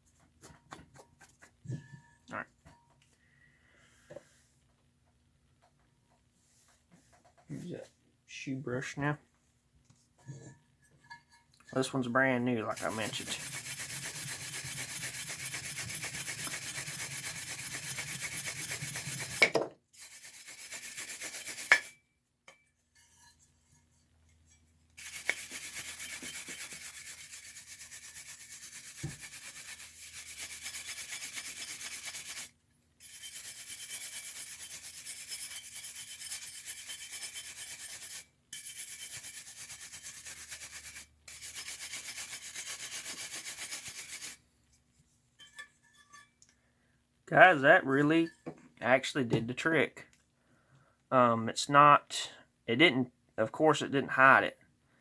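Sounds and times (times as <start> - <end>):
stiff brush scrubbing metal: 11.7 - 19.4, 20.0 - 22.0, 25.0 - 44.4.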